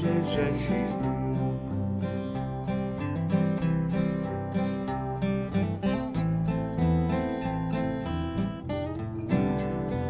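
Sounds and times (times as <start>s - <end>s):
person singing: 0.0s - 2.0s
acoustic guitar strumming: 0.0s - 10.0s.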